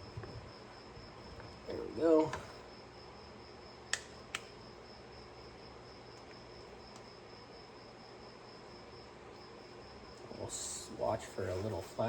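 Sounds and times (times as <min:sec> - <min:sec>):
high-pitched cricket trill: 0:00.0 - 0:12.0
sharp clicks: 0:03.9 - 0:04.5.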